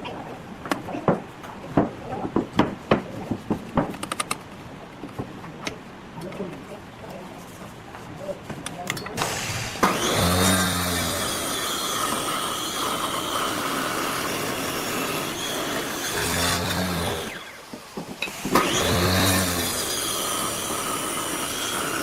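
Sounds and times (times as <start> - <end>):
electric power tool whining: 9.2 - 22.0.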